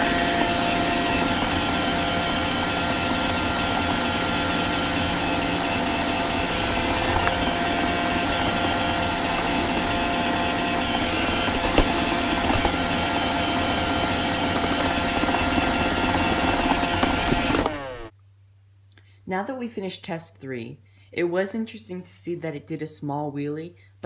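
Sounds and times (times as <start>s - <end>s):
robot vacuum motor whine: 0.0s - 18.1s.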